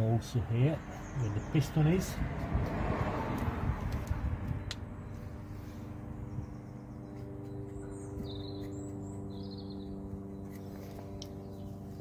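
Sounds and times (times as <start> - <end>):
steady low hum: 4.4 - 12.0
high bird chirps: 6.3 - 10.8.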